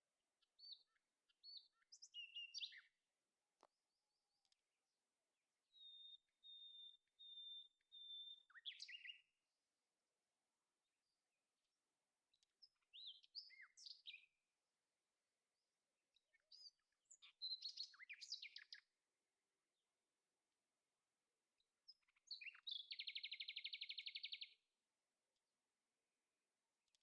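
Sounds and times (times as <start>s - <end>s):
bird quick chirps: 1.4s - 2.9s, 5.8s - 9.2s, 16.4s - 18.8s, 21.9s - 24.6s.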